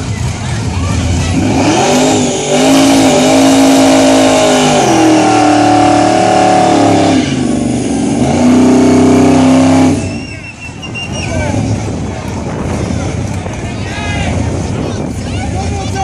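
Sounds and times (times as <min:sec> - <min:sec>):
car engine revving hard: 0:01.2 - 0:10.2.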